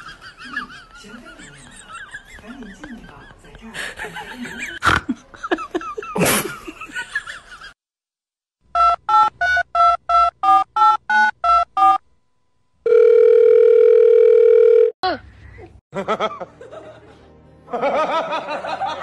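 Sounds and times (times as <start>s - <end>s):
long steady telephone tone: 12.8s - 15.0s.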